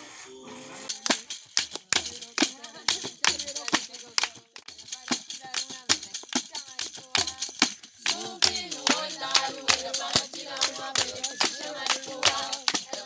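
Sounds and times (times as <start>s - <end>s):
shaker-like percussion beat: 0.8s - 13.0s
person singing: 8.1s - 13.0s.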